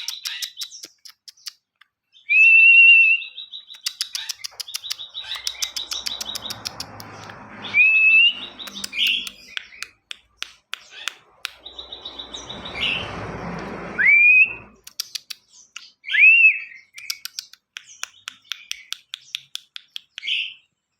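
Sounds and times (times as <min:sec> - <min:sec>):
songbird singing: 0:00.0 - 0:20.8
rushing noise: 0:04.8 - 0:09.8, 0:11.1 - 0:14.8.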